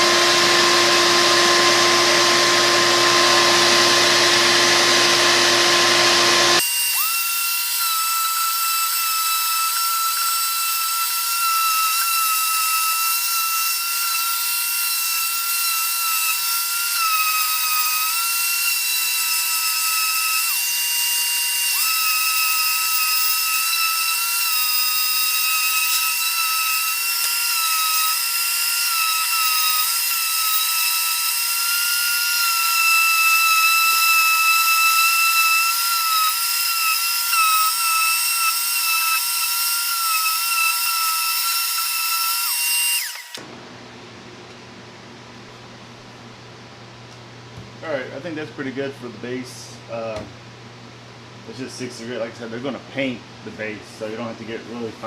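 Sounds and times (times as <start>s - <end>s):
orbital sander on wood: 0.0s - 43.4s.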